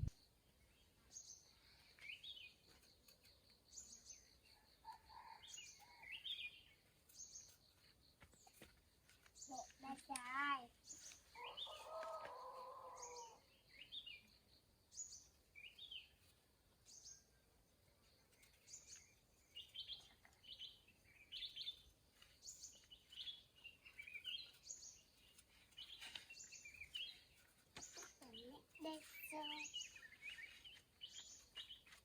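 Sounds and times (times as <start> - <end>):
birds chirping faintly: 0.0 - 32.0.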